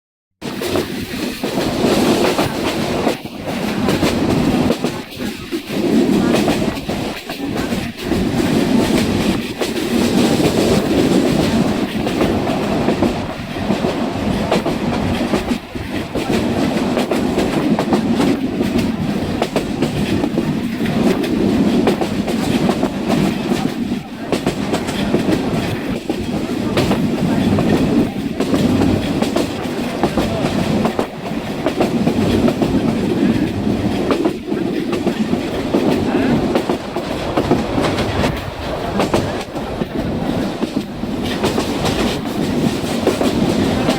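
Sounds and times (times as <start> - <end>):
train carriage running on track: 0.4 - 43.9
wheels clattering on rails: 0.4 - 43.9.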